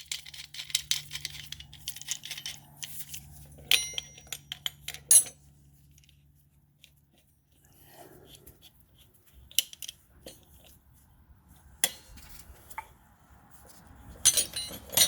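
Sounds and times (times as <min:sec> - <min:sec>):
metal tools clinking: 0:00.0 - 0:05.5, 0:14.2 - 0:15.0
ringing metallic clink: 0:03.7 - 0:05.4.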